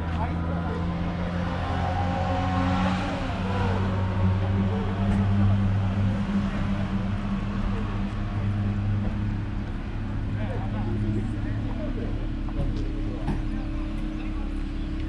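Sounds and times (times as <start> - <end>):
murmur of people talking: 0.0 - 15.0
car engine idling: 3.7 - 15.0.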